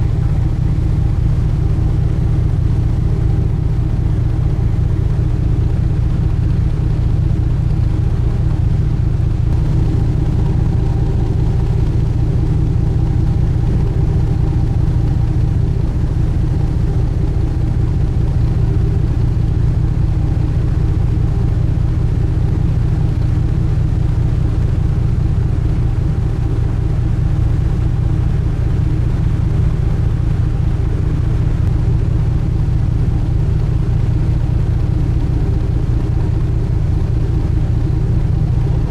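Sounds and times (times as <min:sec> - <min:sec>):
boat engine droning: 0:00.0 - 0:38.9.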